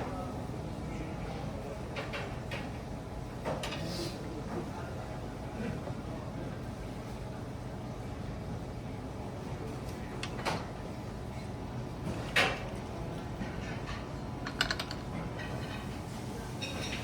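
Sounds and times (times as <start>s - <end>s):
dining room hum: 0.0s - 17.0s
tableware knocks and clinks: 14.4s - 15.7s.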